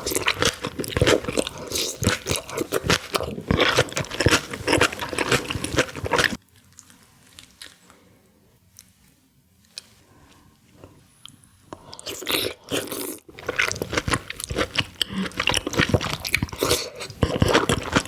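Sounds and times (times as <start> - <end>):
wet chewing and mouth smacks: 0.0 - 7.8, 12.0 - 18.0.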